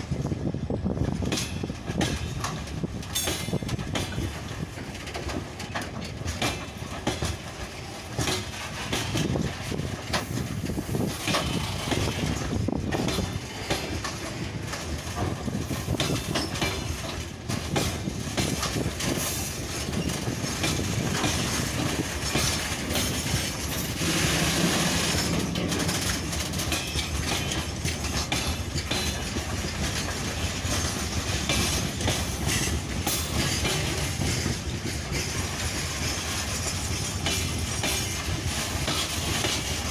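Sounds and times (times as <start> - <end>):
train wheels clicking over rail joints: 0.0 - 39.9.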